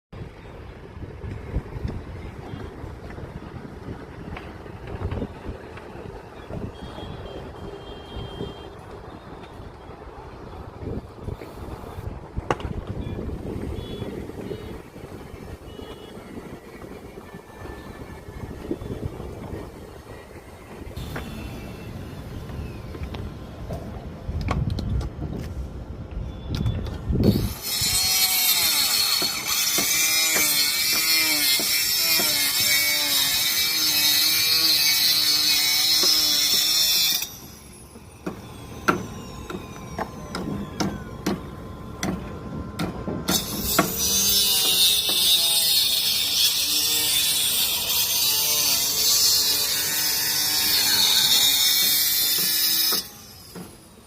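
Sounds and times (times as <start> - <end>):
rising and falling whines: 37.2 - 44.3.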